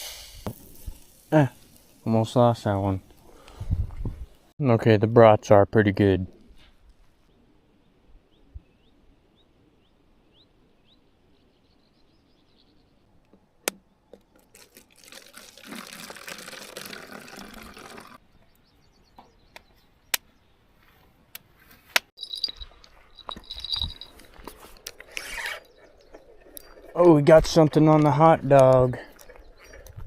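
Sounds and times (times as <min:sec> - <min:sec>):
liquid being poured: 0:14.4 - 0:18.2.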